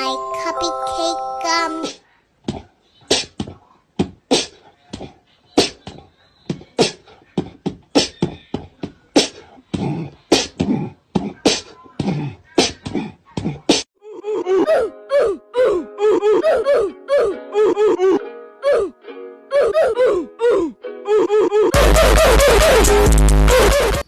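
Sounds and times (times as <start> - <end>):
person beatboxing: 1.8 - 13.8.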